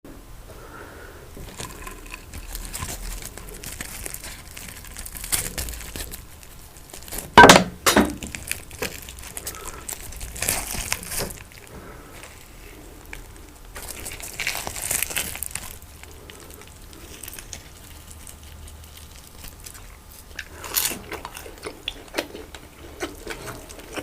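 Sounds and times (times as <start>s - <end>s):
eating and food crinkling: 0.5s - 24.0s.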